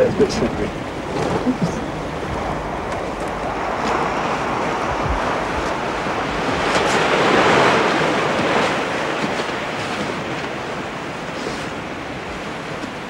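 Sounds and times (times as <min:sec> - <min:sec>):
sea waves washing in: 0:00.0 - 0:13.0.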